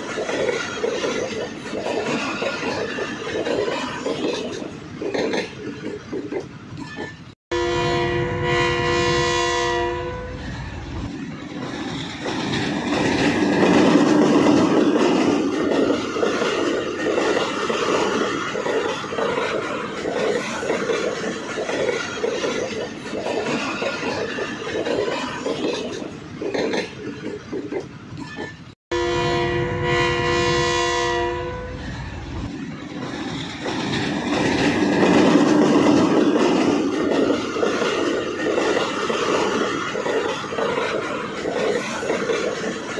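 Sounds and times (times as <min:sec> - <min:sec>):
train horn: 0:07.5 - 0:10.4, 0:28.9 - 0:31.9
train wheels clattering: 0:11.0 - 0:28.8, 0:32.4 - 0:42.9.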